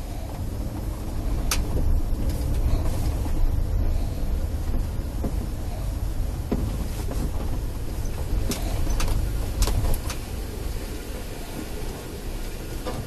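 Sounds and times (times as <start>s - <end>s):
vehicle rumbling: 0.0s - 13.0s
sharp clicks and knocks: 0.3s - 3.6s, 6.4s - 10.4s.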